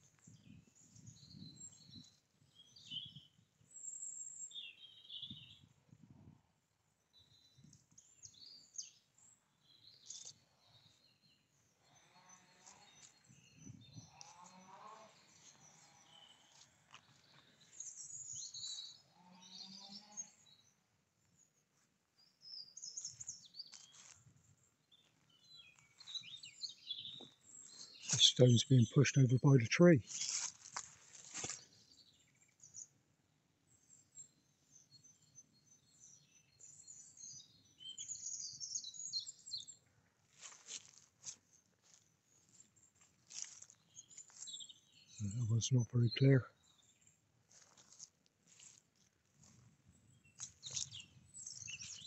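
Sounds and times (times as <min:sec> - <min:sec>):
longer bird calls: 0:11.8 - 0:20.7, 0:50.2 - 0:52.0
birds chirping: 0:24.9 - 0:30.4, 0:41.8 - 0:47.8, 0:49.5 - 0:52.0.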